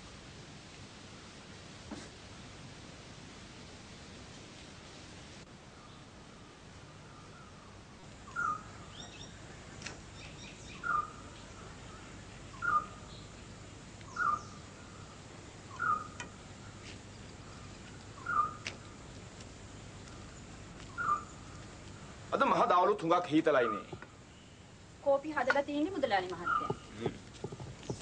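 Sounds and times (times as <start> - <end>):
low background hiss: 0.0 - 28.0
faint high chirping: 10.1 - 13.4, 14.0 - 16.3, 20.2 - 21.6.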